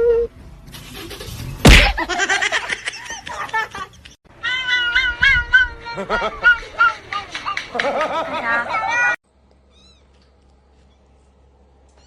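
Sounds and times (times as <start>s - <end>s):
loud thump: 1.6s - 2.1s
cats meowing: 4.4s - 5.8s.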